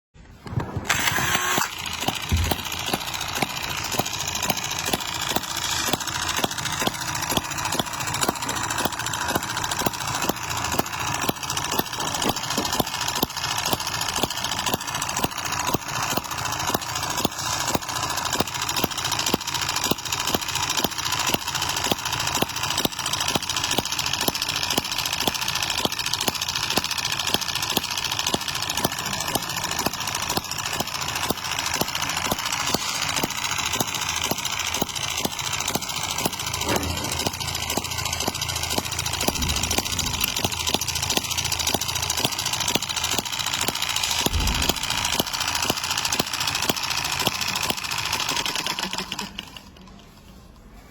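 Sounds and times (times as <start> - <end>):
model engine idling with rapid clicks: 0.4 - 50.8.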